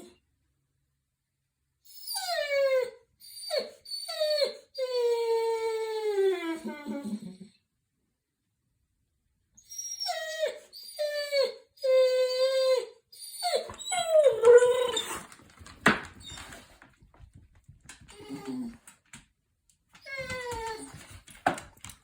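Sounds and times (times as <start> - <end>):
dog whining: 1.9 - 7.5, 9.6 - 15.5, 16.1 - 16.8, 17.9 - 19.0, 20.0 - 21.4.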